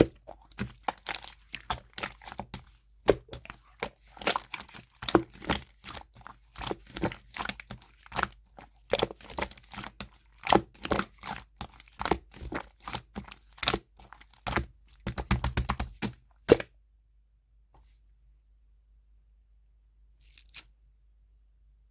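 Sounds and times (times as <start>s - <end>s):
slime popping and crackling: 0.0s - 16.6s.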